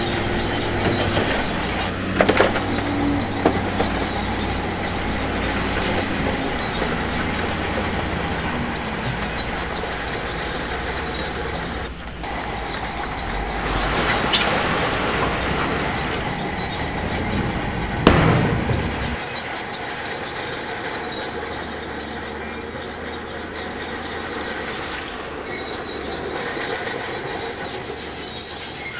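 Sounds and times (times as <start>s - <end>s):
diesel machinery rumbling: 0.0s - 28.9s
metallic clatter: 15.4s - 22.4s
sharp bang: 15.6s - 19.3s.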